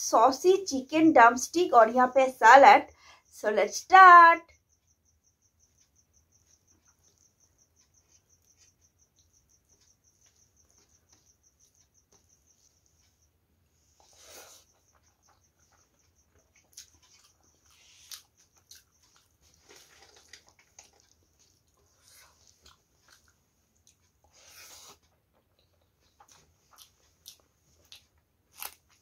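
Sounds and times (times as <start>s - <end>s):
wet chewing and lip smacks: 14.7s - 29.0s
sharp crunch of biting: 16.6s - 23.3s, 26.2s - 29.0s.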